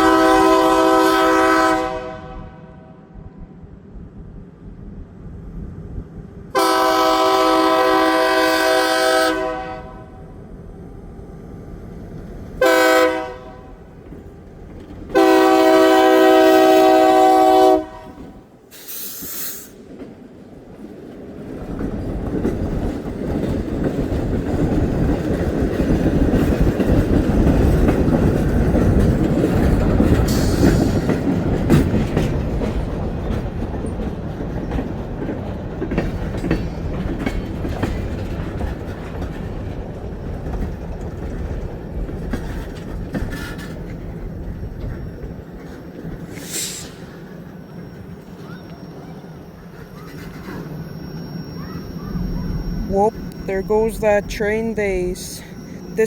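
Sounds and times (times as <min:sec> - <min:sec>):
locomotive horn blasts: 0:00.0 - 0:03.1, 0:06.6 - 0:10.2, 0:12.6 - 0:13.8, 0:15.1 - 0:18.4
passing train rumble: 0:00.0 - 0:56.0
wheels clicking over rail joints: 0:19.8 - 0:50.8.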